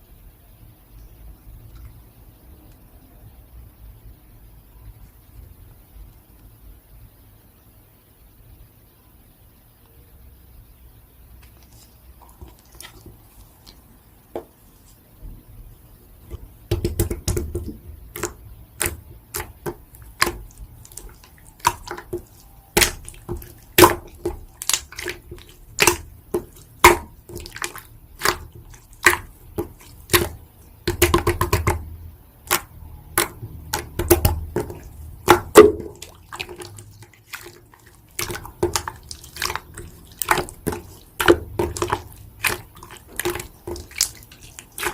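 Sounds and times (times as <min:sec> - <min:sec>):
slime squelching: 0:11.3 - 0:44.9
slime popping and clicking: 0:16.3 - 0:44.9.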